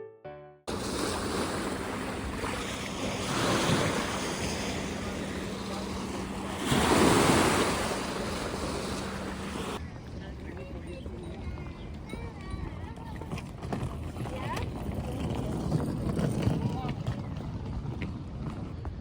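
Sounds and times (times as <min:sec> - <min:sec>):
steady low hum: 0:00.7 - 0:09.8
wind on microphone: 0:00.7 - 0:09.8.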